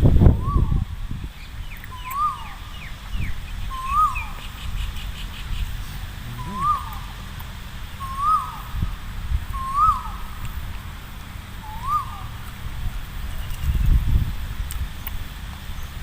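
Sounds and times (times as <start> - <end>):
low wind rumble: 0.0 - 16.0
bird whistling rising and falling: 0.4 - 0.9, 1.8 - 4.5, 6.3 - 7.1, 8.0 - 8.8, 9.5 - 10.3, 11.6 - 12.3
bird chirping: 0.4 - 7.3, 7.9 - 8.8, 9.5 - 10.4, 11.6 - 12.5.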